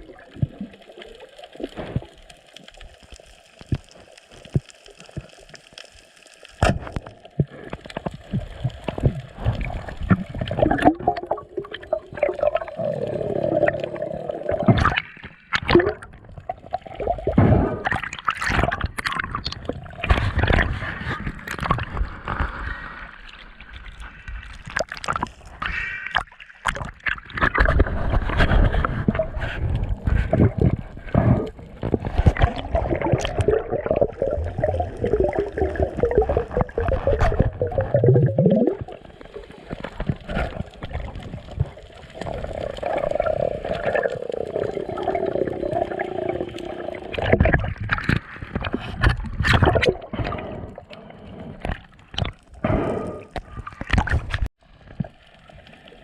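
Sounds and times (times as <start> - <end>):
water gurgling and bubbling: 0.0 - 2.2, 6.6 - 22.6, 23.9 - 55.2.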